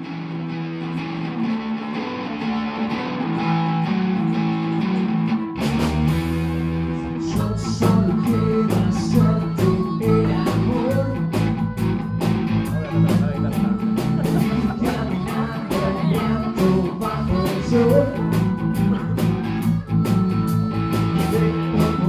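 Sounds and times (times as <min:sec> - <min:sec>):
bass guitar: 0:00.0 - 0:22.0
electric guitar: 0:00.0 - 0:22.0
drum kit beat: 0:05.6 - 0:06.6, 0:07.3 - 0:22.0.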